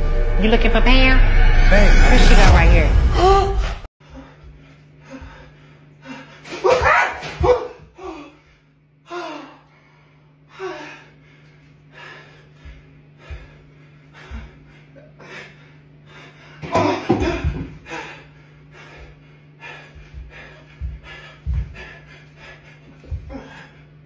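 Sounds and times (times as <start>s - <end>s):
steady low hum: 0.0s - 24.0s
person gasping and yelping: 19.8s - 23.8s.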